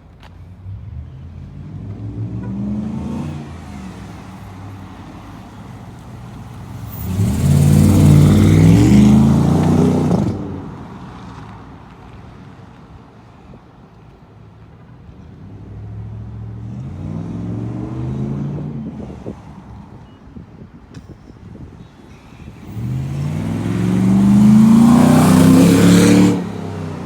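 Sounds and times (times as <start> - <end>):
car engine revving: 6.7 - 10.5, 22.7 - 27.0.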